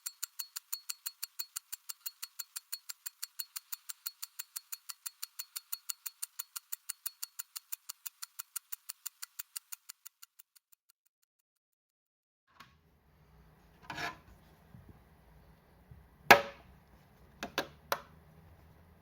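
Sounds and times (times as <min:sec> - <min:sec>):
rapid mechanical ticking: 0:00.0 - 0:10.9.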